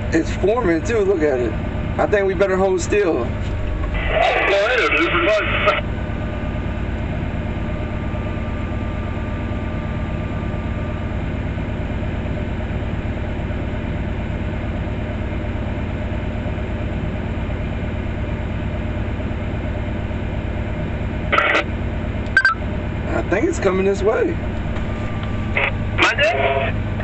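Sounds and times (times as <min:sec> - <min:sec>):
engine idling: 0:00.0 - 0:27.0
faint steady hum: 0:20.0 - 0:27.0.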